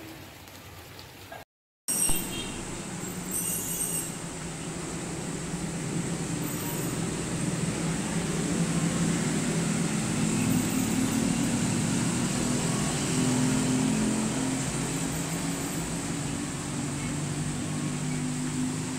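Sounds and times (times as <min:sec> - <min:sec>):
engine humming: 0:01.9 - 0:18.9
steady hiss: 0:02.2 - 0:18.9.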